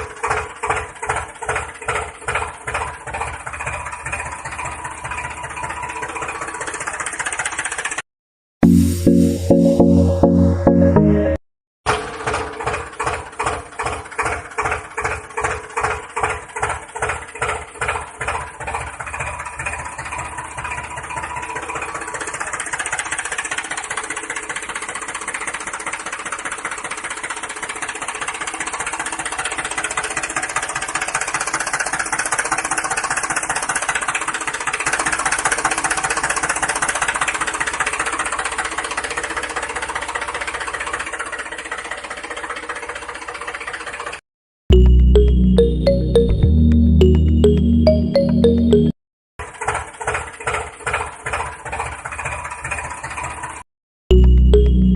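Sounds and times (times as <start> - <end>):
small motor mechanism knocking: 0.0 - 8.0, 11.9 - 39.3, 49.4 - 53.6.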